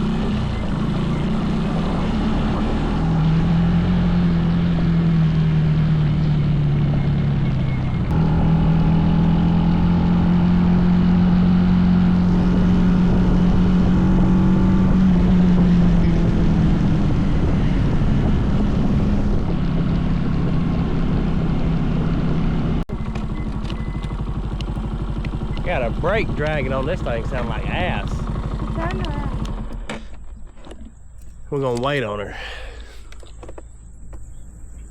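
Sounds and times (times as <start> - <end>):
mini bike engine running: 0.0 - 7.3, 22.9 - 30.0
man talking: 25.6 - 28.3, 31.5 - 32.8.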